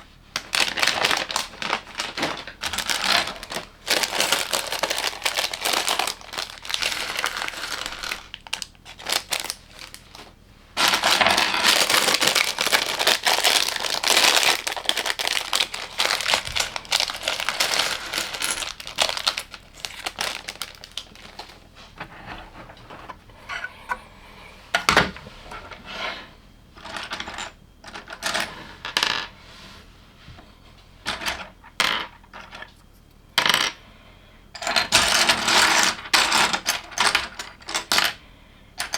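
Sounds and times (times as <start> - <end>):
plastic toy bricks clattering: 0.4 - 21.6.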